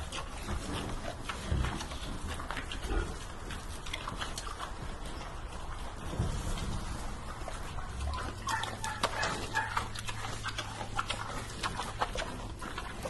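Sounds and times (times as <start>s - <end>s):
animal calling: 7.9s - 11.4s.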